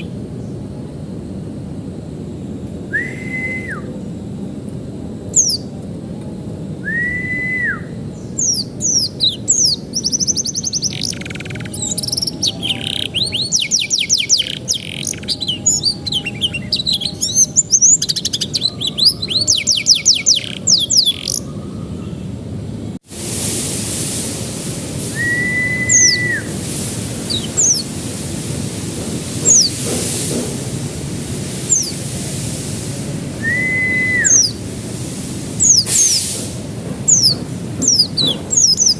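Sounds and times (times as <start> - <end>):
high falling chirps: 0.0 - 0.2, 6.9 - 21.8, 24.9 - 34.8, 35.4 - 38.9
canary singing trills: 0.0 - 0.6, 5.3 - 5.8, 7.3 - 22.3, 25.2 - 28.2, 29.2 - 29.8, 31.6 - 32.1, 33.4 - 34.6, 35.5 - 36.4, 37.0 - 38.9
held whistle note: 2.9 - 4.0, 6.8 - 8.0, 25.0 - 27.8, 33.4 - 34.6.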